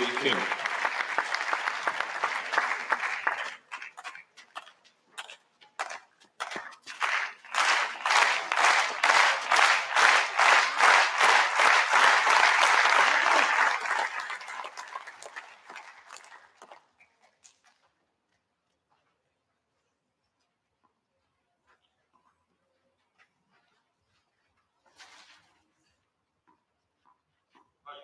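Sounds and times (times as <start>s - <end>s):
crowd applauding: 0.0s - 4.6s, 5.8s - 17.2s.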